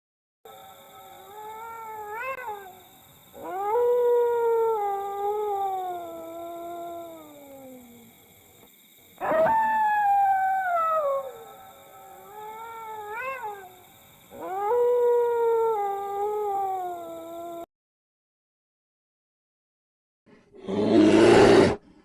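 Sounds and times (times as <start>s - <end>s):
dog howling: 0.5s - 8.0s, 9.2s - 17.6s.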